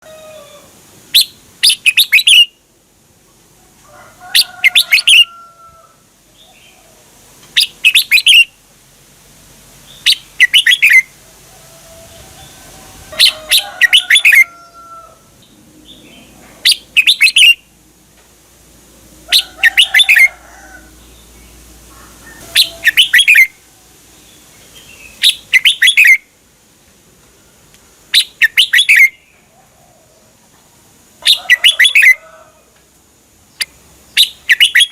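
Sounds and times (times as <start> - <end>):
bulbul singing: 1.1 - 2.6, 7.6 - 8.6, 9.8 - 11.1, 15.4 - 17.7, 22.3 - 23.6, 24.2 - 26.3, 28.1 - 29.4, 31.2 - 32.2, 33.5 - 34.9
faint lower bird calls: 19.3 - 23.7, 24.6 - 26.3, 27.4 - 30.4, 31.2 - 32.7, 33.5 - 34.9.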